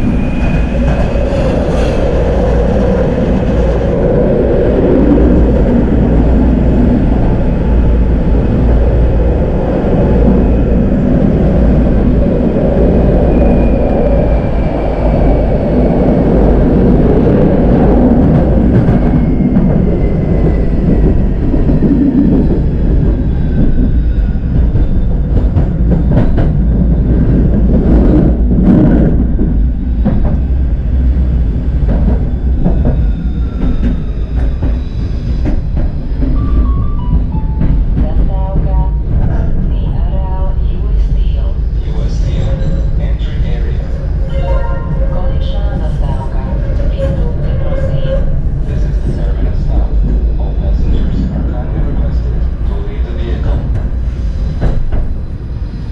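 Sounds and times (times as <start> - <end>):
tram rolling on rails: 0.0 - 55.9.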